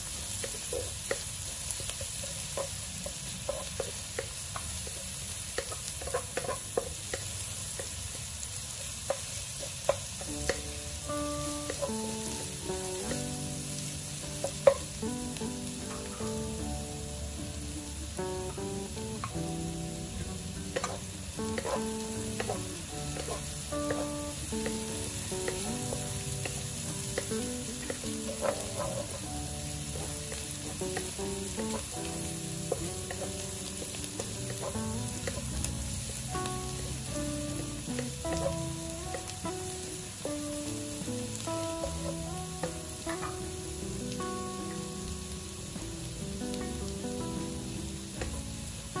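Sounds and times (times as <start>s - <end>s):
food sizzling in hot oil: 0.0s - 49.0s
soft plucked background music: 0.0s - 49.0s
spatula scraping wok: 20.6s - 39.3s.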